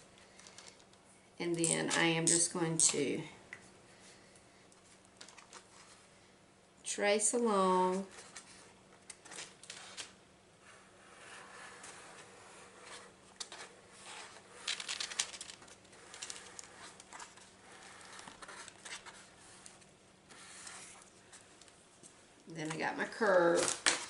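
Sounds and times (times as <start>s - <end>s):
scratching on parchment paper: 7.9s - 21.6s.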